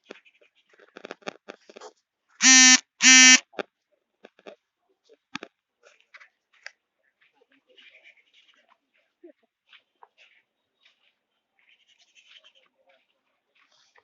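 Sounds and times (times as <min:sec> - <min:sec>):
loud buzzing beeps: 0:02.4 - 0:03.4.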